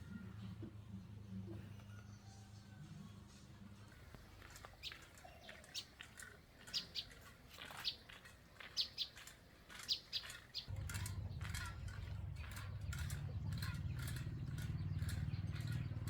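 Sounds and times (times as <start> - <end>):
birds chirping: 3.9 - 16.0.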